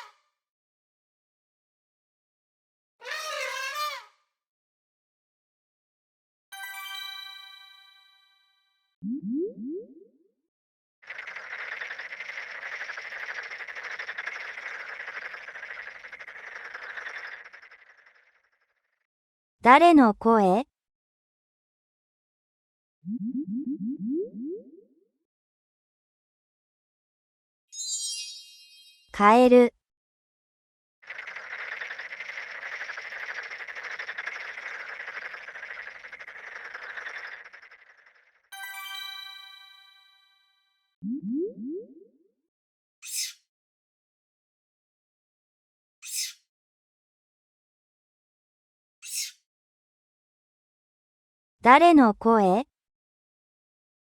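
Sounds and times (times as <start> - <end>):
bell-like musical chime: 6.6 - 8.4, 27.8 - 29.1, 38.6 - 40.4
frog croaking: 11.0 - 18.9, 31.0 - 38.4.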